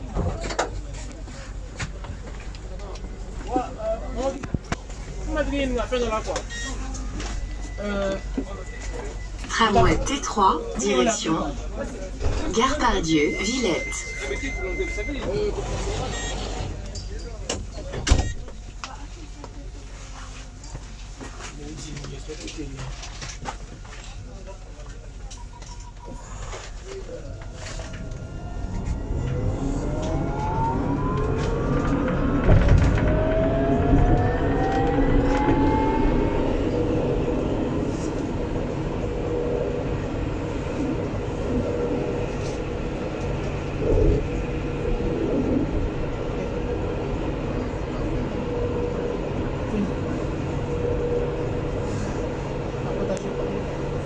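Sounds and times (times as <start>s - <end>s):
tram motor whine: 2.0s - 16.9s, 25.8s - 54.0s
wheels running on rails: 26.9s - 54.0s
track knocks: 27.4s - 36.3s.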